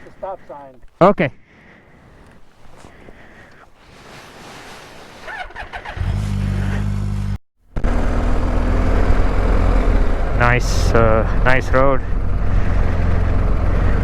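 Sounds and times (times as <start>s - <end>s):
motorcycle engine running: 5.3s - 14.0s.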